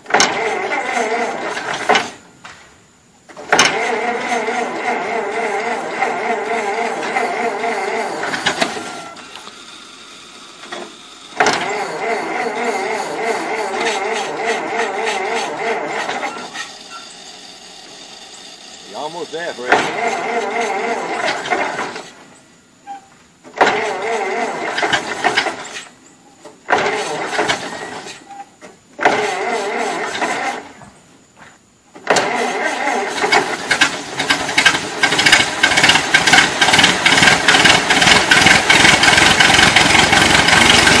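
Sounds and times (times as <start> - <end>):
engine cranking: 0.0 - 2.2, 3.3 - 22.2, 23.5 - 28.3, 29.0 - 30.8, 32.0 - 41.0
engine running: 3.3 - 22.6, 32.0 - 41.0.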